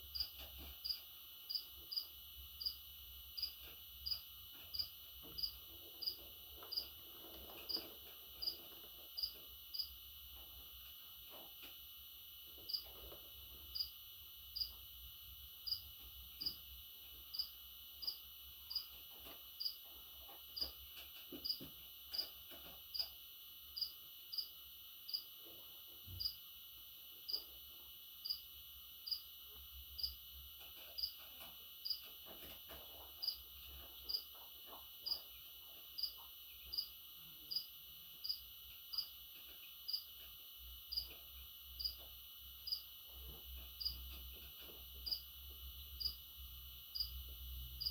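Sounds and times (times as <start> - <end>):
insect chirping: 0.1 - 7.0, 9.2 - 10.0, 13.7 - 14.8, 15.6 - 16.6, 17.3 - 18.9, 19.6 - 19.8, 23.8 - 25.4, 26.2 - 26.5, 28.2 - 29.4, 30.0 - 30.2, 33.2 - 35.3, 36.0 - 39.2, 39.8 - 40.3, 40.9 - 41.2, 41.8 - 43.0, 43.8 - 44.0, 45.0 - 47.9.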